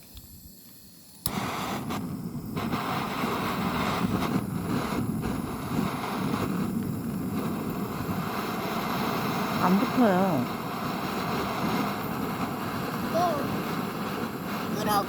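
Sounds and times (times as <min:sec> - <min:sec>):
gas torch igniter click: 0:00.0 - 0:09.6
gas torch flame rushing: 0:00.0 - 0:15.0.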